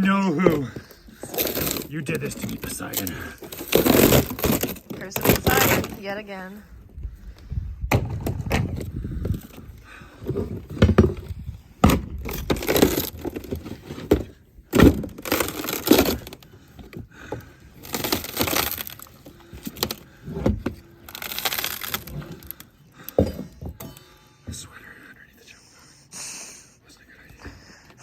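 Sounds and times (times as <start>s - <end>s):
deck wood cracking and crunching: 0.0s - 6.3s, 7.8s - 24.8s.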